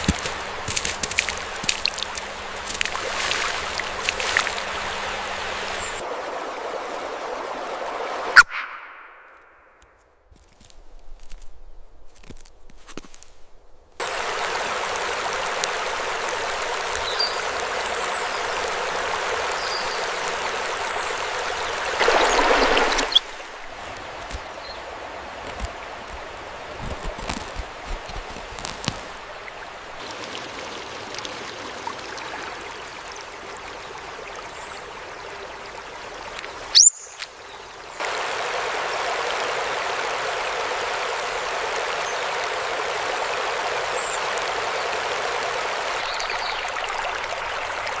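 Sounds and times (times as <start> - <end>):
water trickling: 0.0 - 8.4, 14.0 - 48.0
stream rushing: 0.0 - 9.8, 14.0 - 48.0
small clicks and ticks: 25.4 - 29.2.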